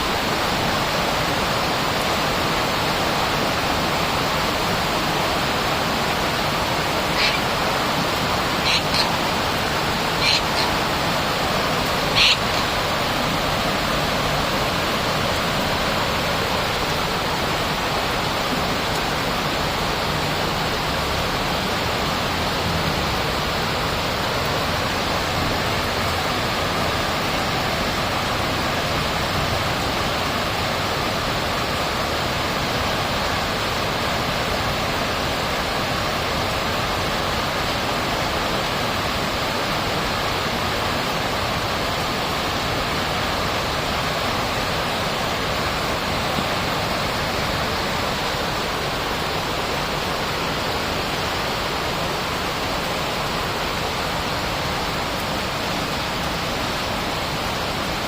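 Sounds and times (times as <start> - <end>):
steady rushing noise: 0.0 - 27.2
high-pitched bird chirps: 7.1 - 7.5, 8.6 - 9.2, 10.2 - 10.7, 12.1 - 12.7.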